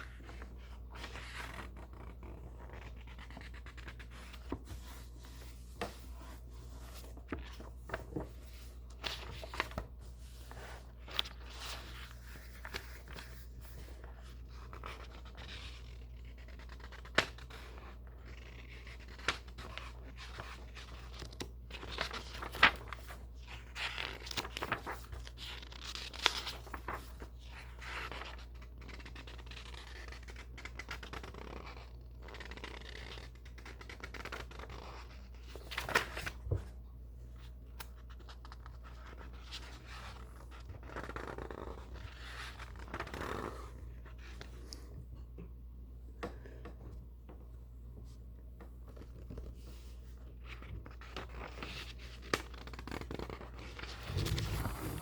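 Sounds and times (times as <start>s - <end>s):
book pages rustling: 0.0s - 36.8s, 37.4s - 45.1s, 48.0s - 55.0s.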